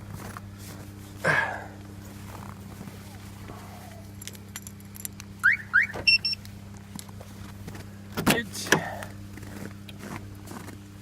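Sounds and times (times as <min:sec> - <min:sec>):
low hum: 0:00.0 - 0:11.0
car alarm chirps: 0:05.4 - 0:06.4
short beeps: 0:05.4 - 0:06.4.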